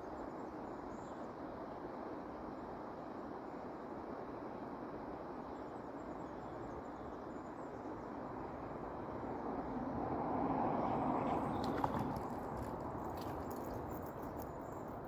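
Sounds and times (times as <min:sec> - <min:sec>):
flowing river water: 0:08.1 - 0:15.0.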